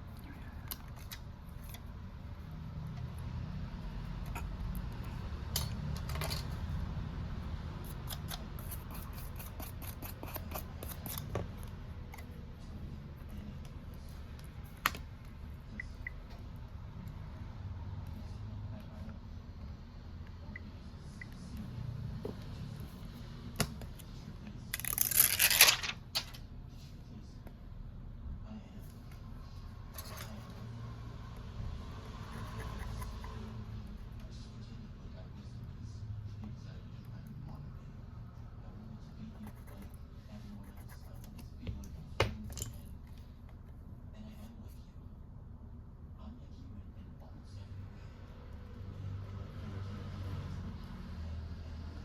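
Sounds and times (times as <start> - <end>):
tearing: 24.8 - 25.9
steady low hum: 25.7 - 52.0.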